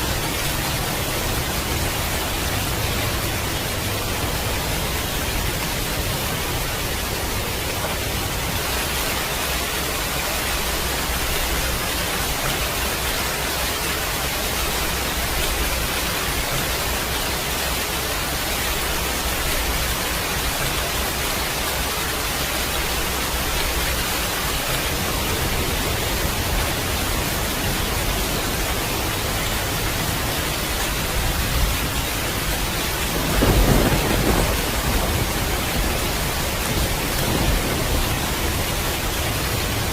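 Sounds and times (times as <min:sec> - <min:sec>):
rain hissing: 0:00.0 - 0:39.9
thunder rumbling: 0:22.5 - 0:39.9
thunderclap: 0:31.2 - 0:39.9.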